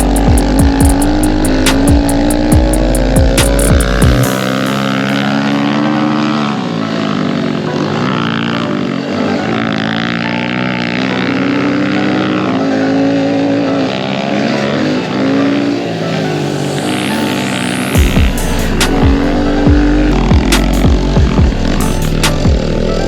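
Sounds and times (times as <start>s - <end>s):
pit bike engines revving: 0.0s - 23.0s.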